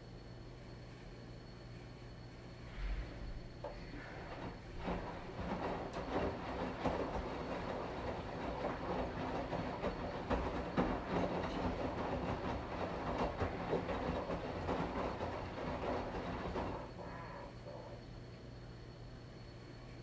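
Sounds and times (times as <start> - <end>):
washing machine running: 3.4 - 18.1
washing machine clicks and knocks: 3.6 - 16.9.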